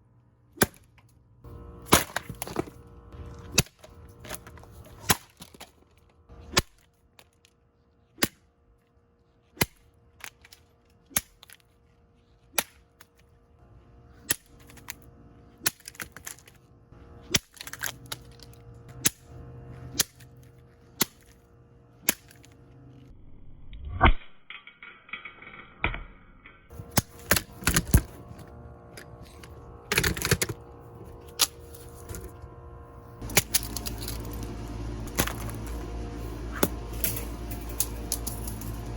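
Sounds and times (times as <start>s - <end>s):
faint steady hum: 0.0s - 23.6s, 26.7s - 38.9s
table fan being smashed: 1.8s - 2.7s
plastic breaking and cracking: 1.9s - 2.8s.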